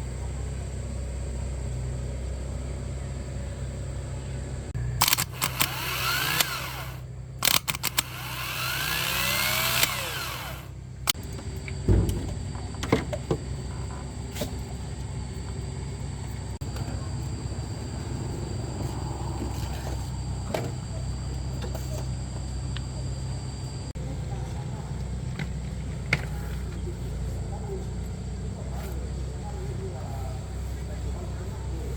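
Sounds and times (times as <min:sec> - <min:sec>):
steady low hum: 0:00.0 - 0:31.9
power tool running: 0:04.7 - 0:11.2.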